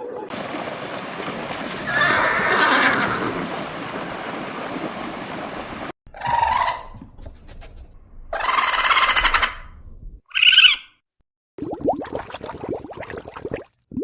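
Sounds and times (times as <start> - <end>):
animal calls: 1.9 - 3.5.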